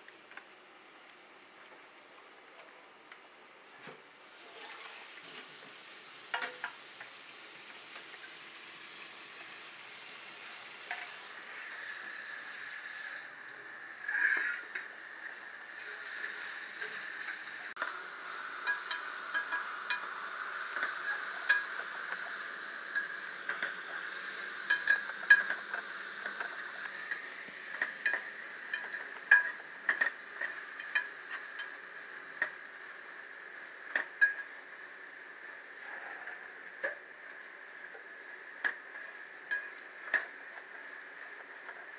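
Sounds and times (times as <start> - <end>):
food sizzling in a pot: 4.3 - 41.9
spoon clinking and scraping pot: 18.6 - 20.1, 24.6 - 26.5, 27.8 - 31.8, 34.0 - 34.5, 39.5 - 40.2.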